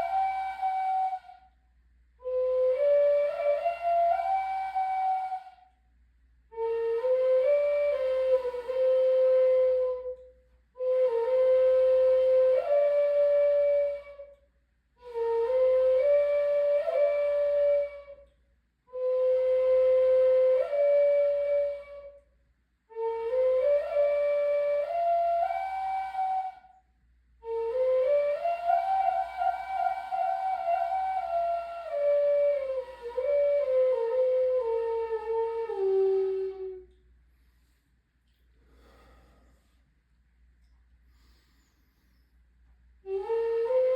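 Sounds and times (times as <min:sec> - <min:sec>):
flute playing slow melody: 0:00.0 - 0:01.6, 0:02.2 - 0:05.8, 0:06.5 - 0:22.3, 0:22.9 - 0:37.1, 0:43.0 - 0:43.9.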